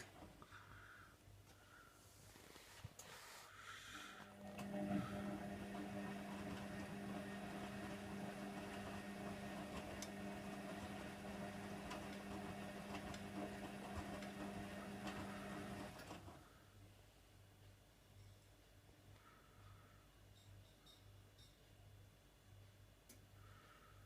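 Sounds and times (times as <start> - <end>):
washer dryer humming: 3.9 - 16.4.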